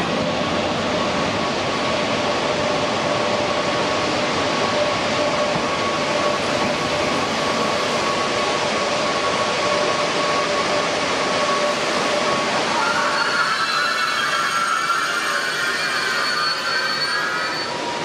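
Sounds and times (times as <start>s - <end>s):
high-speed train rushing: 0.0s - 18.0s
train whining tones: 4.7s - 18.0s.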